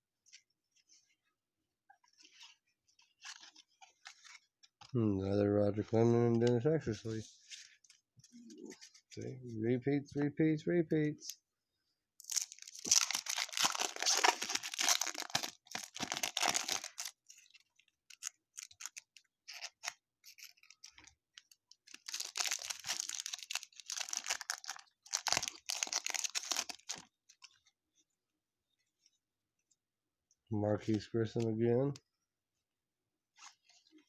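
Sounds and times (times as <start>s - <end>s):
card pack wrappers tearing and crinkling: 12.2s - 27.1s.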